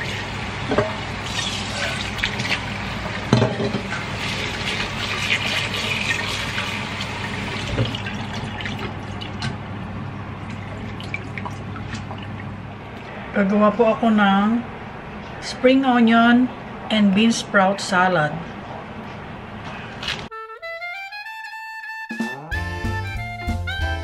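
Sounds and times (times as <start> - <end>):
tap water running into bowl: 0.0 - 9.6.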